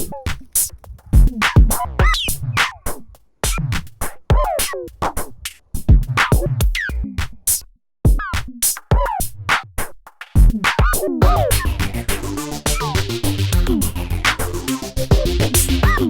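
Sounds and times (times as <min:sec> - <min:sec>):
electronic beat kick and hi-hat: 0:00.0 - 0:09.4, 0:10.2 - 0:16.0
swooping synth notes: 0:11.2 - 0:16.0.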